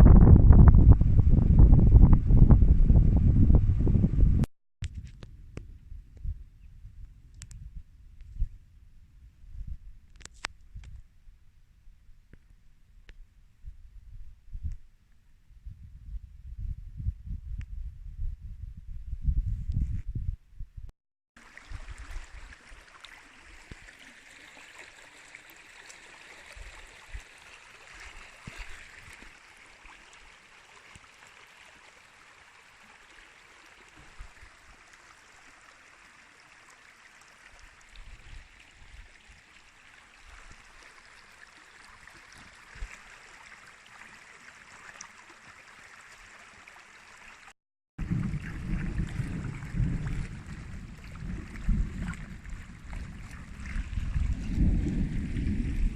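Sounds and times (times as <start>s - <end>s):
wind buffeting microphone: 0.0s - 4.5s, 15.6s - 20.9s, 48.0s - 55.9s
running water: 21.4s - 55.9s.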